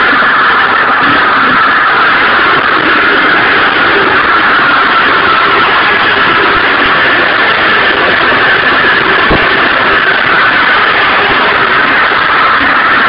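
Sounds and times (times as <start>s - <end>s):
low thump: 9.3s - 9.6s.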